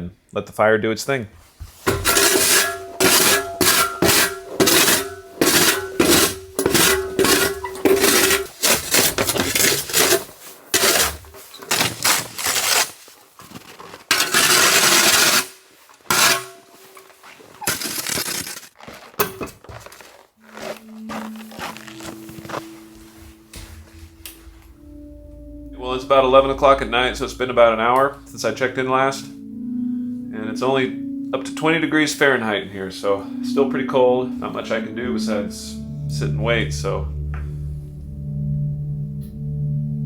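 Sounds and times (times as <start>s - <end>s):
snow shovel scraping snow: 1.8s - 24.2s
steady ringing tone: 20.6s - 39.5s.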